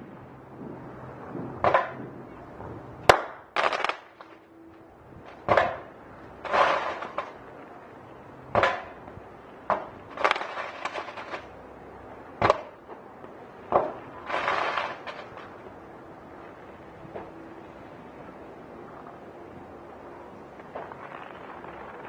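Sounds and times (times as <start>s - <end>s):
fireworks bangs: 0.0s - 4.5s, 5.2s - 7.7s, 8.5s - 11.6s, 13.6s - 15.7s, 20.6s - 22.0s
fireworks crackling: 0.0s - 4.6s, 5.2s - 17.4s, 19.9s - 22.0s.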